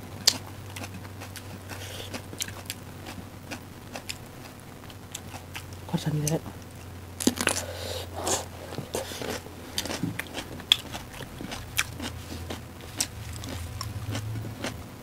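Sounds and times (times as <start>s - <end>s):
faint low hum: 0.0s - 15.0s
people chewing and biting food: 0.0s - 15.0s
crisp crunches: 7.2s - 14.8s.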